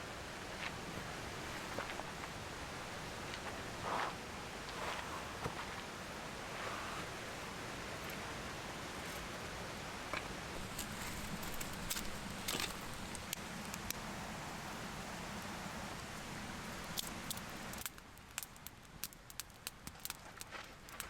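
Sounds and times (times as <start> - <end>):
campfire crackling and popping: 10.2 - 14.2, 15.4 - 21.0.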